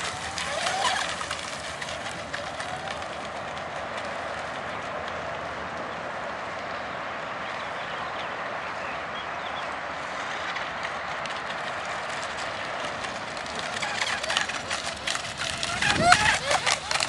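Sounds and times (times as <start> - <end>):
rc boat motor and spray: 0.0 - 4.1, 11.5 - 17.0.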